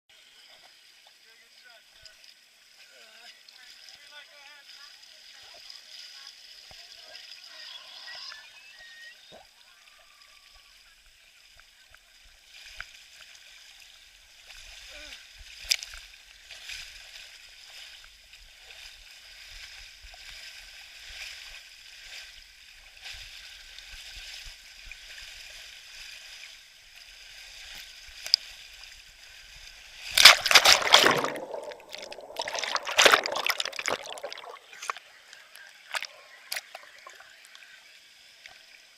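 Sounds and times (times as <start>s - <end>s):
loud rush of splashing: 30.0s - 35.0s
water running down a slide: 30.0s - 35.0s.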